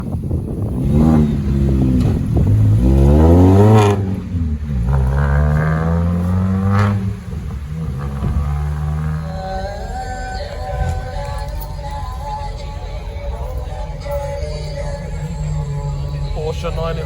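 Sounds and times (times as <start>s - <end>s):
car engine revving hard: 0.0s - 12.3s.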